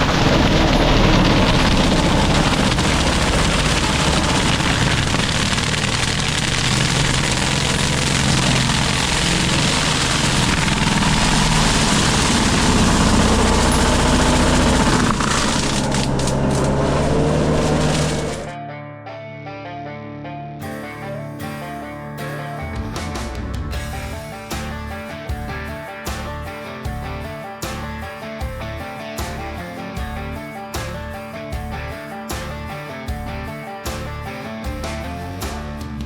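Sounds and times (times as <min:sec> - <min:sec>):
mulcher grinding brush: 0:00.0 - 0:18.5.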